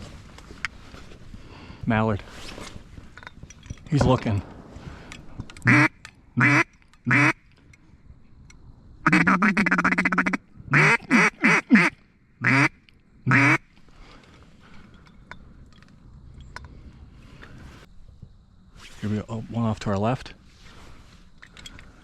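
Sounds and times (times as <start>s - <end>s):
chattering duck feed call: 5.6s - 7.4s, 9.0s - 13.7s
duck call quacks: 5.6s - 7.4s, 9.0s - 13.7s.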